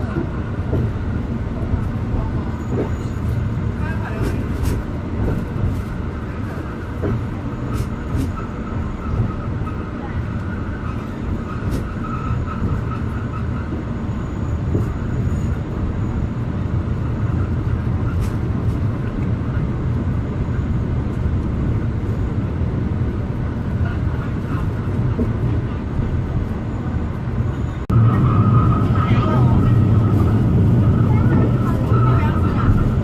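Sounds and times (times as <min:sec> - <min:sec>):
train rumbling along track: 0:00.0 - 0:33.0.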